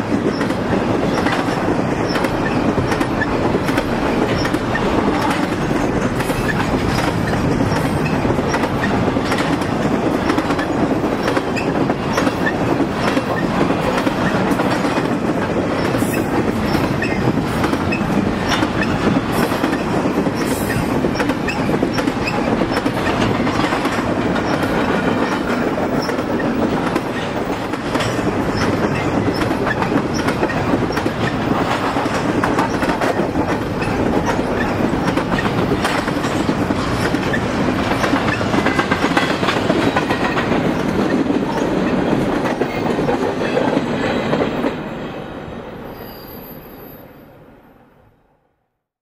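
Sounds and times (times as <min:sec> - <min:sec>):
wheels clicking over rail joints: 0:00.0 - 0:44.8
steel wheels on rail: 0:00.0 - 0:47.3.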